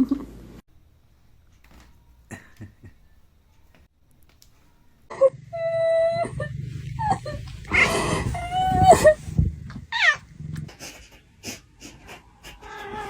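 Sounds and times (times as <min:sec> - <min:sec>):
steady low hum: 0:04.6 - 0:12.7
cat yowling and meowing: 0:05.6 - 0:09.2, 0:09.9 - 0:10.2, 0:12.6 - 0:13.0.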